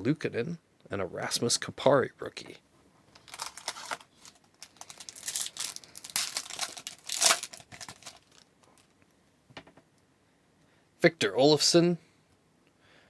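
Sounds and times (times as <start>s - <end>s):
plastic wrapper crinkling: 3.1s - 8.9s.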